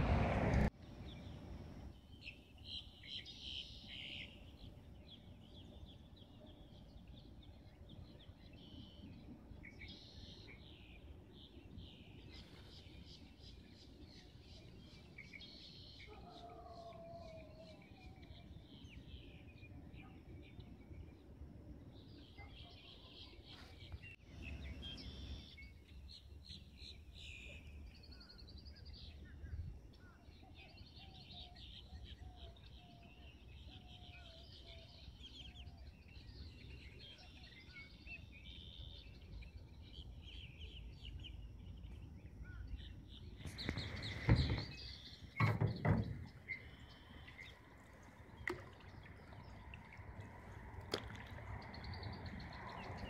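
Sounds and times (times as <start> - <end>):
faint open air hum: 0.0 - 53.0
birds chirping and singing: 22.0 - 53.0
loud knocks and thuds: 45.4 - 46.4.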